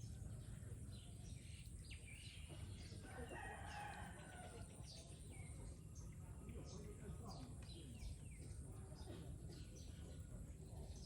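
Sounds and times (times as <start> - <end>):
small birds chirping: 0.0 - 11.0
faint rooster crow: 3.0 - 4.9.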